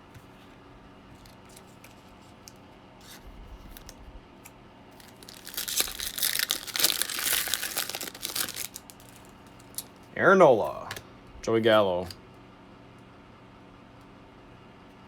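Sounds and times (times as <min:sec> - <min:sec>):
wrapper being torn and crinkled: 0:05.0 - 0:09.9.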